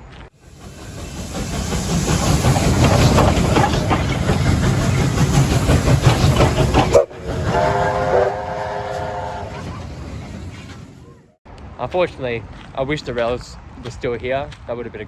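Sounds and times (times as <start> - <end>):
steam locomotive chugging: 0.4 - 11.4
steam whistle: 7.0 - 9.6.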